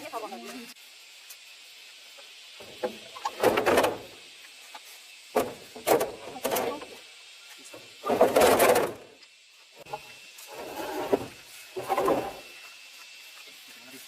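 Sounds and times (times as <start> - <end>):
rough scraping sounds: 8.0 - 9.1, 9.8 - 12.6.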